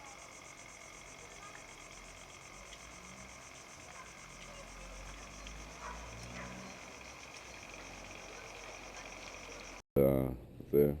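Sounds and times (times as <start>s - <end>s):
insect chorus chirring: 0.0s - 9.8s.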